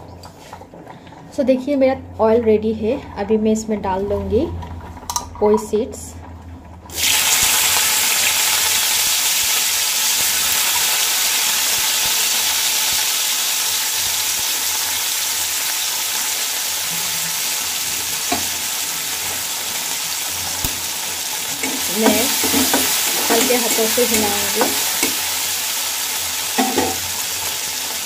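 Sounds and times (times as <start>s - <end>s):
seeds sizzling in hot oil: 6.9s - 28.0s.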